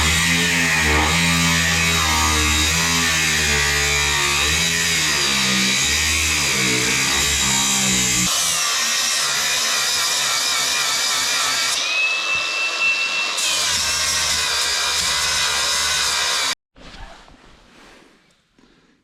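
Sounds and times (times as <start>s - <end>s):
angle grinder cutting steel: 0.0s - 16.6s
high squeal of grinder disc: 11.8s - 14.4s.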